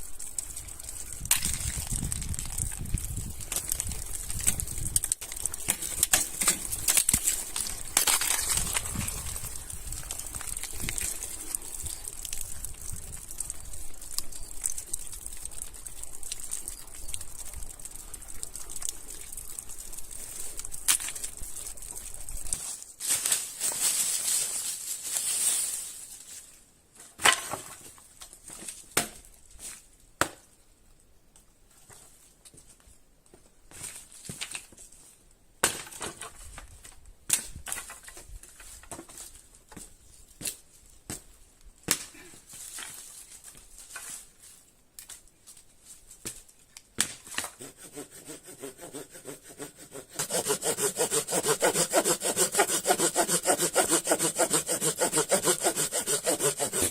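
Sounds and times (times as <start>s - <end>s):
hand saw cutting wood: 47.3s - 56.9s.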